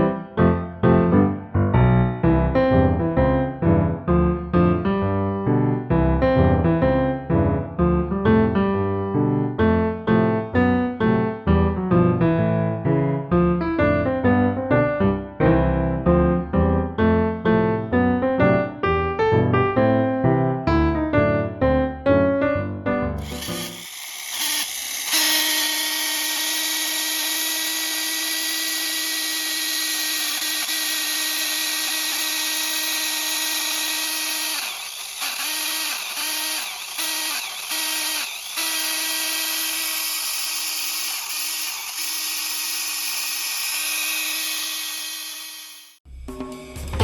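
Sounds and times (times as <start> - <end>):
small electric motor whining: 23.2 - 46.0.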